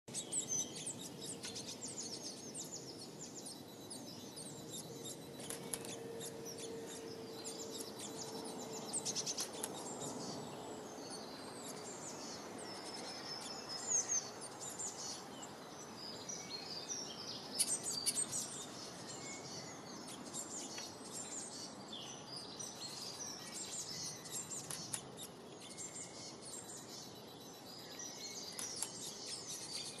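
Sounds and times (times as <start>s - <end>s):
outdoor background noise: 0.0s - 30.0s
small birds chirping: 0.0s - 30.0s.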